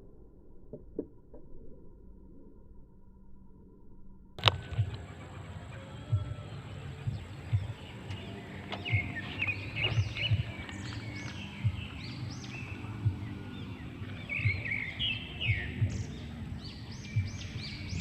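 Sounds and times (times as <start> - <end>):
low irregular thumps: 4.4 - 18.0
small birds chirping: 4.4 - 18.0.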